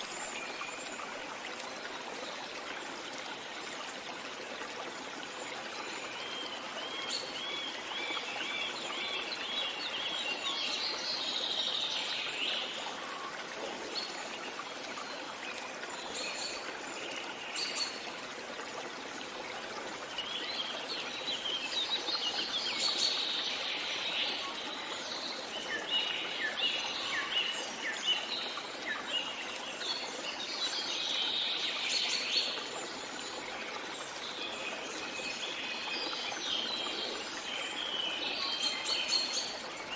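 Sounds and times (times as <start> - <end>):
songbirds singing: 0.0 - 18.2
stream rushing: 0.0 - 38.0.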